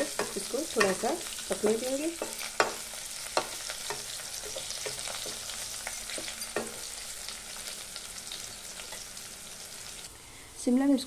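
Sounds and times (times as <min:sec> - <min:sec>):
vegetables sizzling in oil: 0:00.0 - 0:11.0
spatula scraping a pan: 0:01.7 - 0:07.1.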